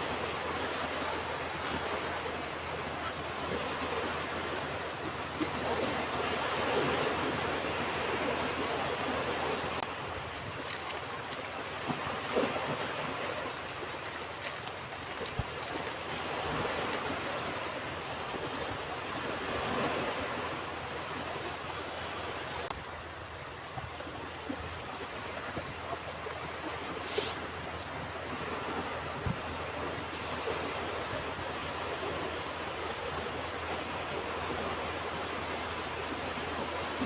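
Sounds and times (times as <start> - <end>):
ocean waves on beach: 0.0 - 10.6, 27.0 - 27.4
brief high hiss: 27.0 - 27.4.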